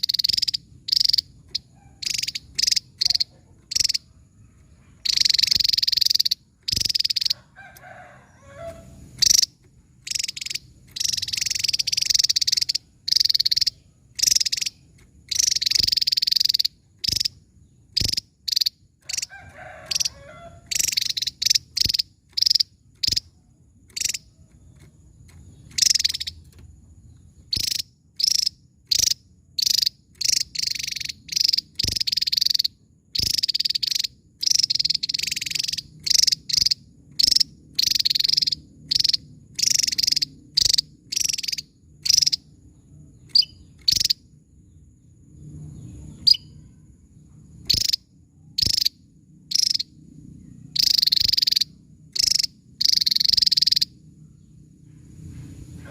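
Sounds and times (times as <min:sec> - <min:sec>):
bird singing sharp high calls: 0:00.0 - 0:07.4, 0:08.3 - 0:19.3, 0:19.9 - 0:24.9, 0:25.5 - 0:26.5, 0:27.4 - 0:42.4, 0:43.2 - 0:44.2.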